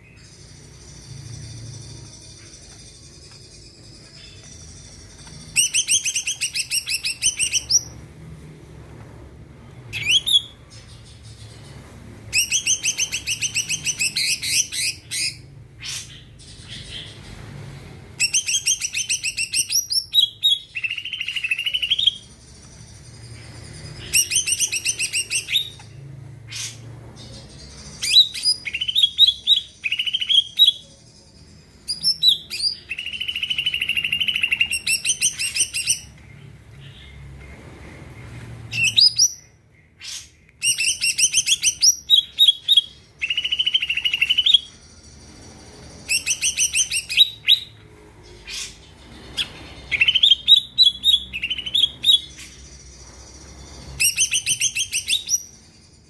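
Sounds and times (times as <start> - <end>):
sweeping whistles: 40.6 - 47.8.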